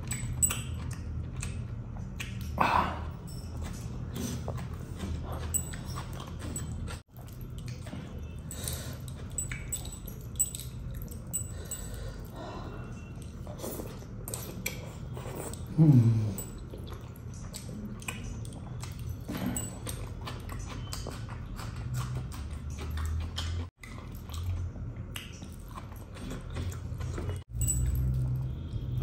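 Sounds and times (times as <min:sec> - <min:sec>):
wet chewing and lip-smacking: 0:00.0 - 0:29.0
person humming mmm: 0:15.6 - 0:16.5.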